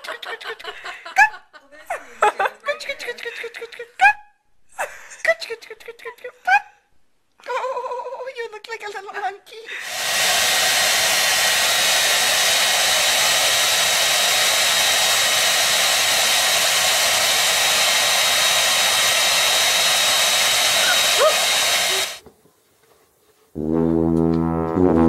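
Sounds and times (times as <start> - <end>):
hair dryer running: 9.8 - 22.2.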